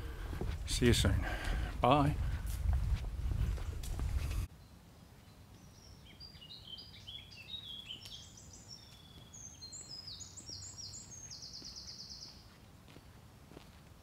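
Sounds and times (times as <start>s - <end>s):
songbird singing: 3.6s - 13.2s.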